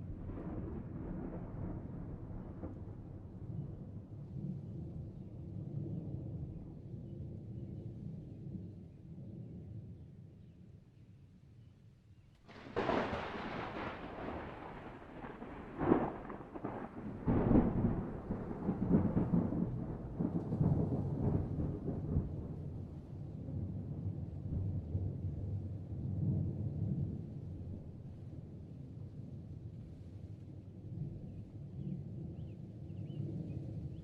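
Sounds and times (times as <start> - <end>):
thunder cracking and rumbling: 0.0 - 6.8, 12.5 - 28.6.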